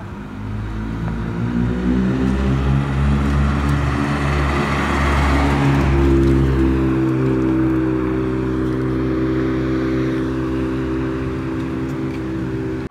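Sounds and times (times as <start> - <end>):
car engine running: 0.0 - 12.9.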